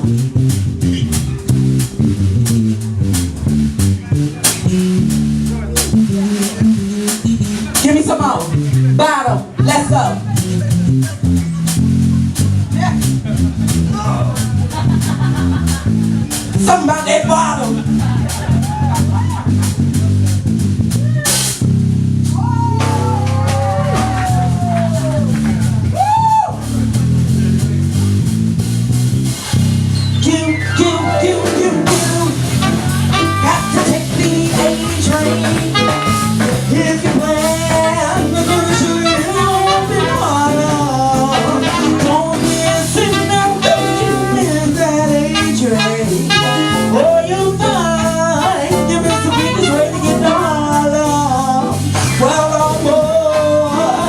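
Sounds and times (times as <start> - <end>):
jazz band playing: 0.0 - 54.0.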